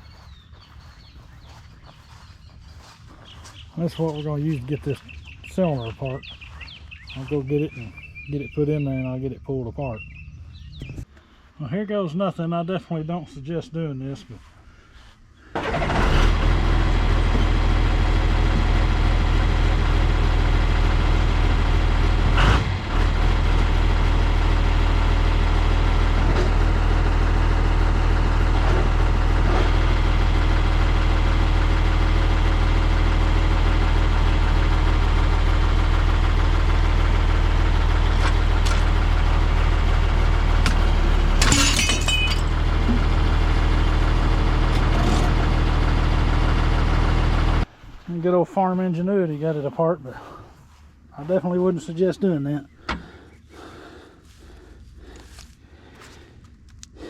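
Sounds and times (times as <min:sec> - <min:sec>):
engine idling: 0:15.5 - 0:48.0.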